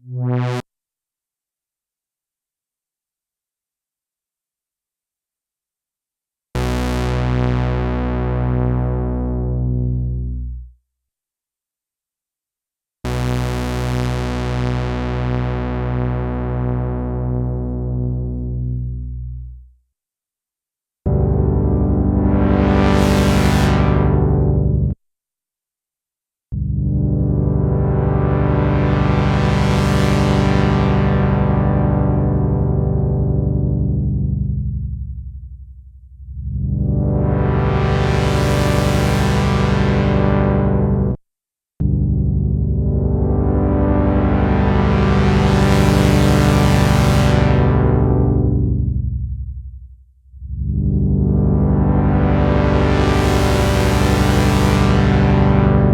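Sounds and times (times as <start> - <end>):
synthesizer low held note: 0.0 - 0.6, 21.1 - 25.0, 26.6 - 41.2, 41.8 - 55.9.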